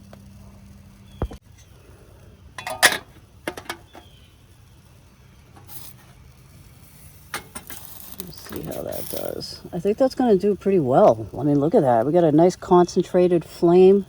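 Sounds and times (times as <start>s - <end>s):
metal cookware clinking: 2.6s - 4.1s.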